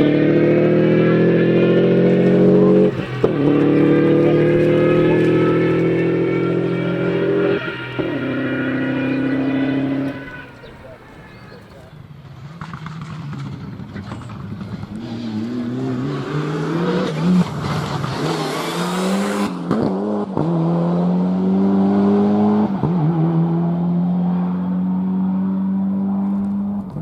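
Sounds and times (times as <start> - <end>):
rally car accelerating: 0.0 - 27.0.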